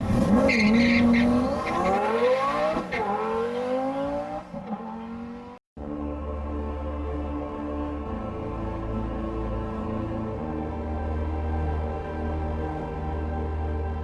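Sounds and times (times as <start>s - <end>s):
sports car accelerating hard: 0.0s - 5.6s
dramatic background music: 5.8s - 14.0s.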